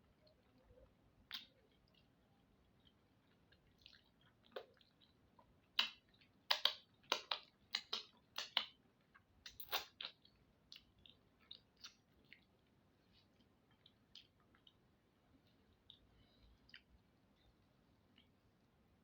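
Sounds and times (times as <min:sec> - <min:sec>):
chewing and lip-smacking: 0:00.3 - 0:17.0.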